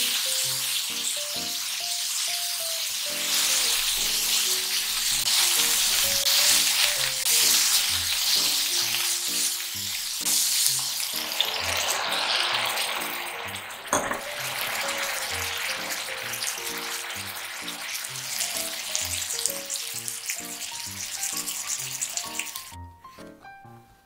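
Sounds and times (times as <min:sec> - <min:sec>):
meat sizzling in a frying pan: 0:00.0 - 0:22.8.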